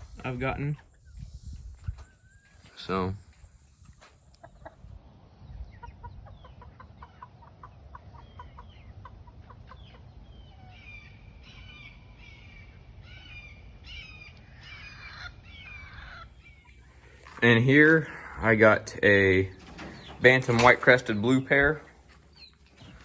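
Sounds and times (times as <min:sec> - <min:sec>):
chickens clucking: 0:00.0 - 0:13.0, 0:13.6 - 0:23.0
chicken high falling calls: 0:04.1 - 0:23.0.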